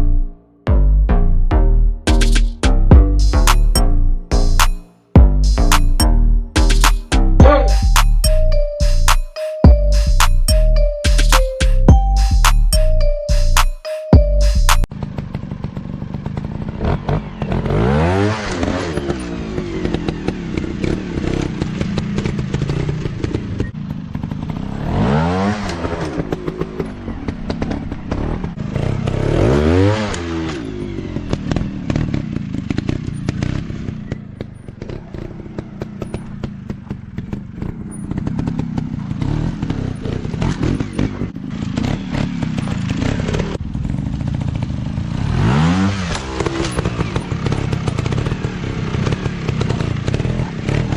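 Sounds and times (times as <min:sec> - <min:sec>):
dirt bike engines revving: 0:15.0 - 0:50.9.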